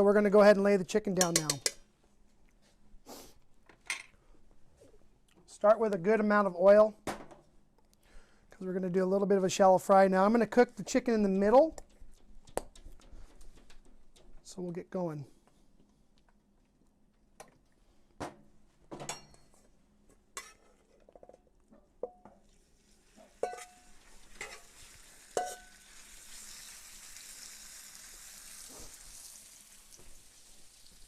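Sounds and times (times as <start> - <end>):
oil sizzling: 22.4 - 31.0.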